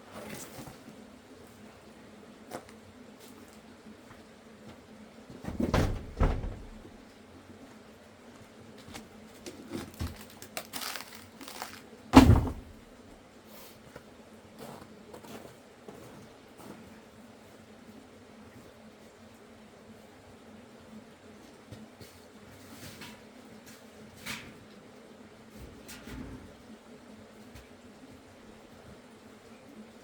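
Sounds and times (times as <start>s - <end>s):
dull thumps and knocks: 5.3s - 7.0s, 12.2s - 12.9s.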